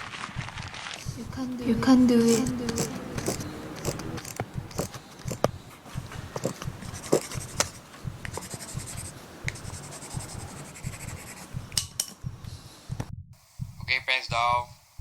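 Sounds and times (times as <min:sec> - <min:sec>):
pen scratching on paper: 0:04.7 - 0:05.5, 0:06.4 - 0:11.6.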